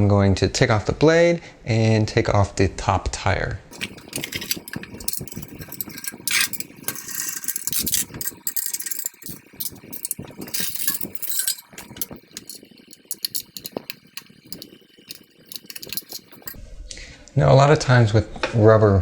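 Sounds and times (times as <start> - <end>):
metal parts rattling and clicking: 3.7 - 16.6
scraping rattles: 3.7 - 16.6.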